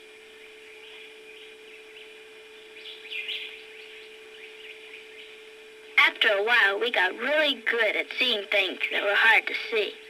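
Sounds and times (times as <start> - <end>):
steady low hum: 0.0 - 10.0
birds chirping and singing: 0.4 - 5.5.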